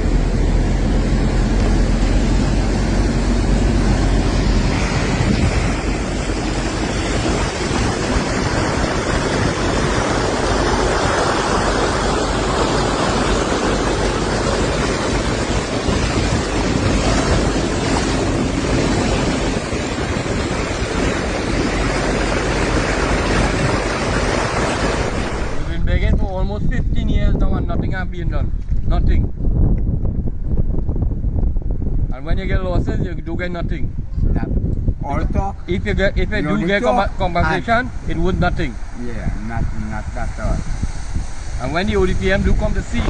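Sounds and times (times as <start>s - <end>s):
floodwater rushing: 0.0s - 26.1s, 36.2s - 43.0s
wind buffeting microphone: 0.0s - 43.0s.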